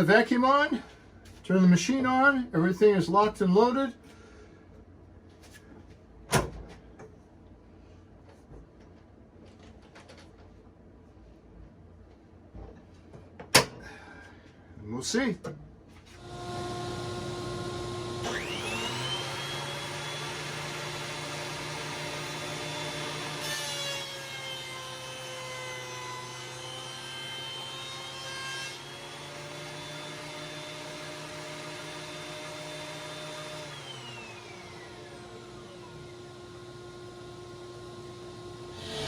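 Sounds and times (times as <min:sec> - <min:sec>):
vacuum humming: 0:16.2 - 0:23.4, 0:28.8 - 0:39.0
planer motor whine: 0:16.2 - 0:23.5, 0:28.8 - 0:39.0
board fed through planer: 0:16.2 - 0:39.0.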